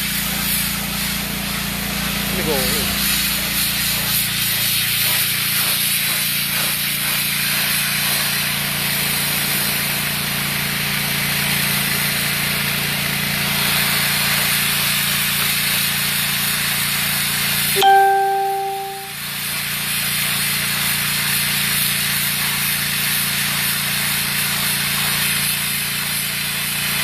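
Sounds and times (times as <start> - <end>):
pressure washer spray hissing: 0.0 - 10.2.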